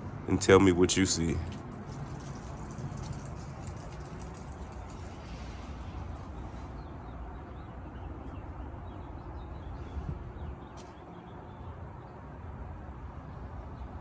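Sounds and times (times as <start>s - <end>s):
wind rumble on microphone: 1.5s - 7.7s, 8.4s - 10.8s.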